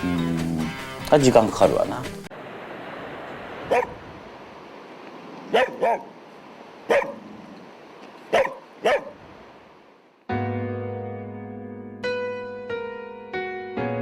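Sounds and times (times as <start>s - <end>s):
steady background hiss: 1.0s - 10.3s
dog barking: 3.7s - 4.0s, 5.5s - 6.1s, 6.9s - 7.3s, 8.3s - 9.2s.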